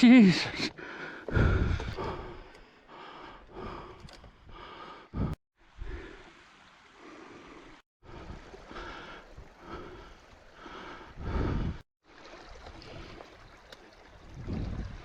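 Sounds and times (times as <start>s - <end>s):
heavy gasping breaths: 0.5s - 5.4s, 8.1s - 11.8s
wind rumble on microphone: 12.8s - 15.0s.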